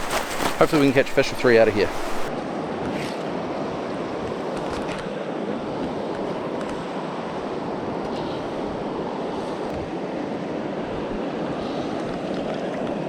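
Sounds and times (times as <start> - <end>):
river water flowing: 0.0 - 2.3.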